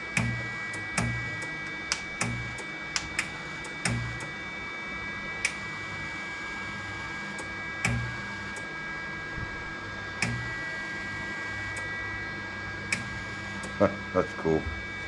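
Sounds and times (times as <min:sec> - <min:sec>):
welder trigger click: 0:00.0 - 0:04.3, 0:05.4 - 0:05.8, 0:07.3 - 0:08.7, 0:10.2 - 0:11.9, 0:12.9 - 0:13.9
steady high hum: 0:00.0 - 0:15.0
welder wire feed motor: 0:00.0 - 0:15.0.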